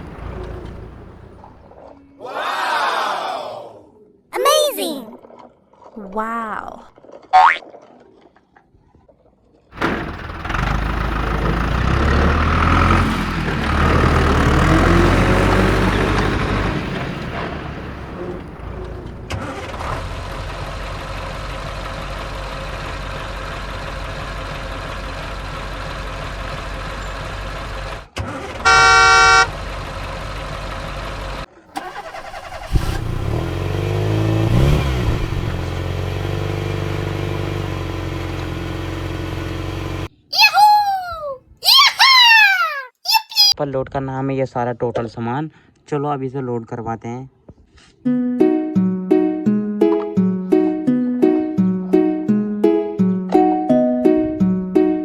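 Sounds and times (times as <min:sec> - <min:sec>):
truck engine running: 0:00.0 - 0:01.8, 0:09.8 - 0:40.1
truck horn: 0:28.4 - 0:30.0.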